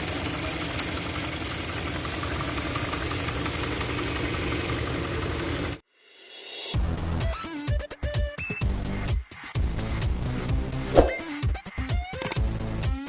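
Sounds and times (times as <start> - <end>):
engine running with knocking: 0.0 - 5.8.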